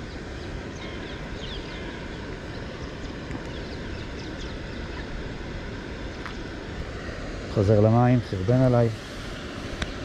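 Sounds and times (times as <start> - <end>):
faint high bird chirps: 0.0 - 5.1
low outdoor background noise: 0.0 - 10.0.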